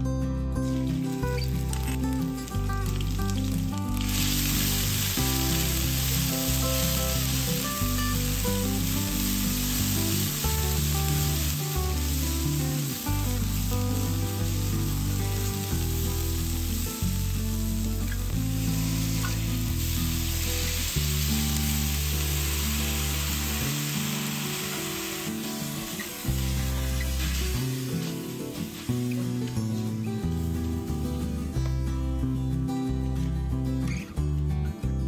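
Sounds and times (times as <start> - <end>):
background music: 0.0 - 35.0
paste sizzling in a wok: 0.8 - 31.3.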